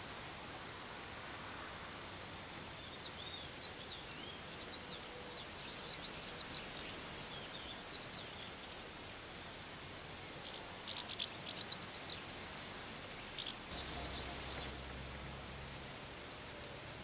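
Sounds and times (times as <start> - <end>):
steady outdoor hiss: 0.0 - 17.0
songbird singing: 2.8 - 9.0, 10.2 - 15.4.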